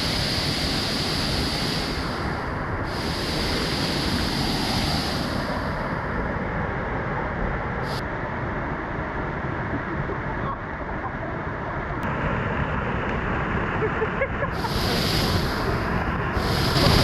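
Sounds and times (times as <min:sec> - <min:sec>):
bright hiss: 0:00.0 - 0:06.1, 0:07.8 - 0:08.0, 0:14.5 - 0:17.0
waterfall pouring: 0:16.4 - 0:17.0.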